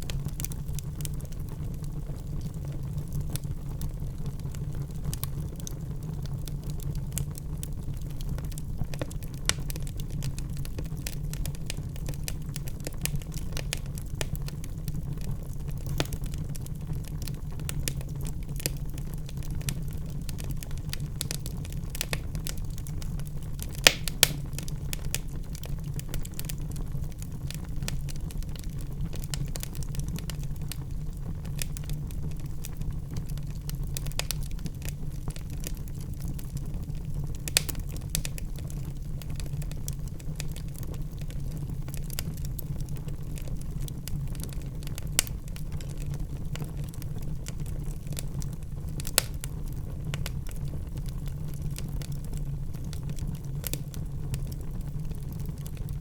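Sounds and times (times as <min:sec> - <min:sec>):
wood fire crackling: 0:00.0 - 0:56.0
loud fire pops: 0:06.7 - 0:32.1, 0:32.7 - 0:42.6, 0:44.1 - 0:50.6.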